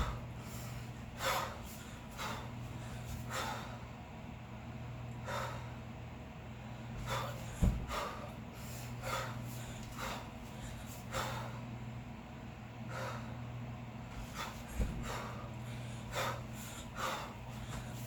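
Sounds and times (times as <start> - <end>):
person breathing forcefully: 0.0 - 4.0, 5.2 - 5.9, 6.6 - 11.8, 12.8 - 18.0
low thump: 7.6 - 7.9.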